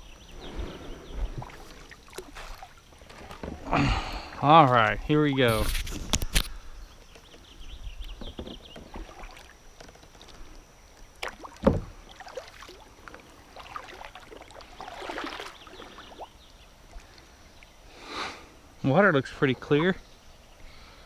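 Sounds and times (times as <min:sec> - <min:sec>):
paddle strokes splashing in water: 0:00.6 - 0:03.8, 0:11.2 - 0:16.3
kayak knocks: 0:01.2 - 0:03.8, 0:08.0 - 0:10.1, 0:11.2 - 0:12.0.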